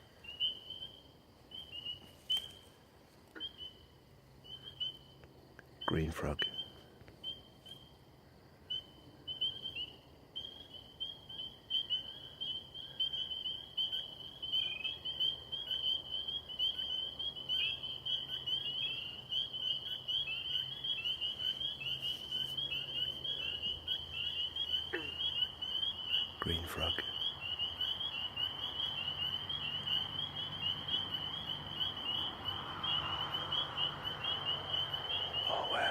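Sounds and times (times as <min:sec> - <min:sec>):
frog chorus peeping: 0:00.0 - 0:35.9.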